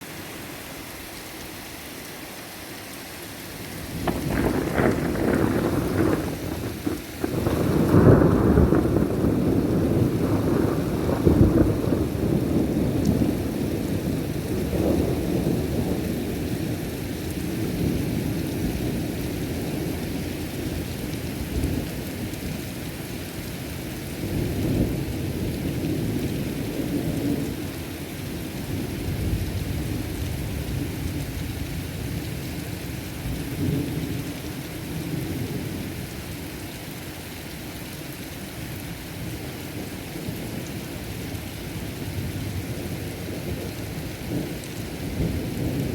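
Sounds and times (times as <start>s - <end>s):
heavy rain falling: 0.0s - 45.9s
rolling thunder: 3.9s - 16.8s.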